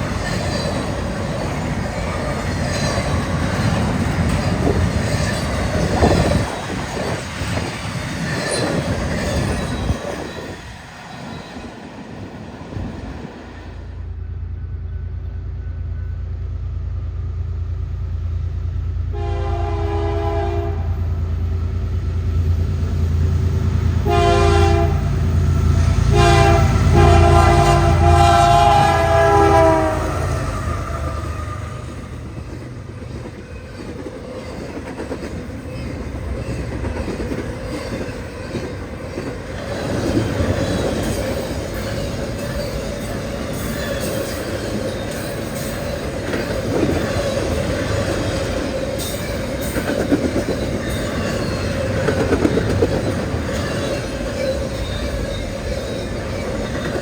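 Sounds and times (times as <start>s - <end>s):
clickety-clack rail noise: 0.0s - 57.0s
locomotive engine rumbling: 0.0s - 57.0s
faint steady squeal: 13.6s - 17.0s, 53.4s - 57.0s
train air horn: 19.1s - 21.2s, 24.0s - 25.2s, 25.9s - 32.2s.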